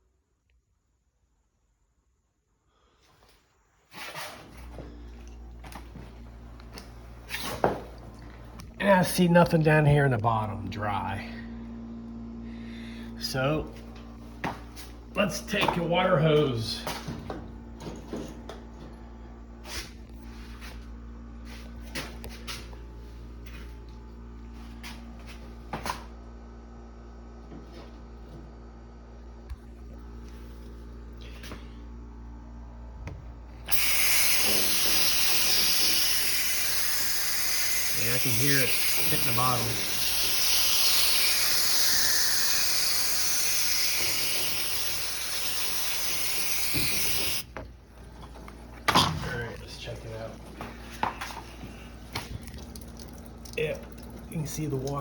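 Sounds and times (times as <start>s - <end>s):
steady low hum: 3.7s - 55.0s
hose spray hissing: 33.7s - 47.4s.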